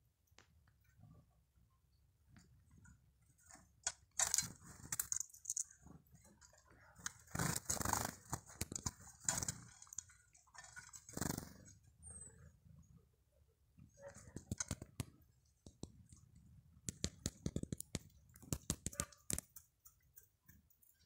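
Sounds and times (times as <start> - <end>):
birds scuffling and clicking: 2.3 - 12.0, 13.8 - 21.0.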